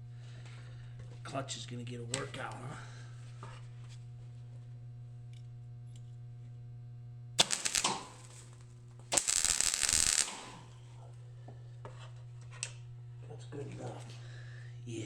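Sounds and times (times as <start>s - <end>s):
arc welding crackle: 7.4s - 10.9s
welder humming: 7.4s - 10.9s.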